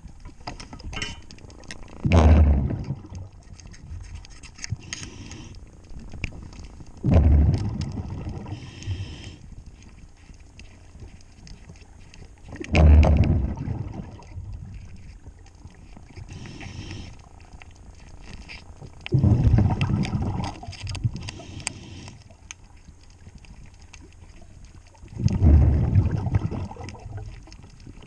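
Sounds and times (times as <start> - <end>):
faint clicks and scrapes: 0.0 - 28.0
bubbles gushing from exhalation: 2.0 - 3.4, 7.0 - 8.8, 12.5 - 14.8, 19.1 - 22.0, 25.0 - 28.0
regulator inhalation hiss: 8.5 - 9.4, 16.3 - 17.2, 21.3 - 22.2.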